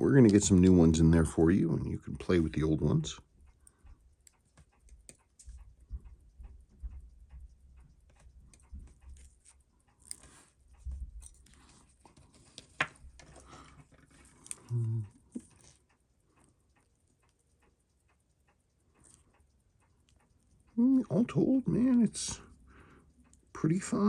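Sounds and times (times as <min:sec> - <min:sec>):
metal tweezers clicking and tapping: 0:03.6 - 0:20.5
person humming: 0:14.7 - 0:15.1.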